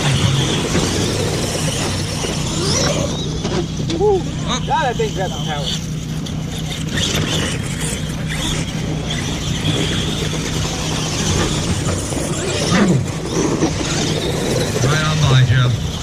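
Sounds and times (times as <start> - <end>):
high-pitched whine: 0.0 - 16.0
steady low hum: 0.0 - 16.0
toy truck motors whining: 0.0 - 16.0.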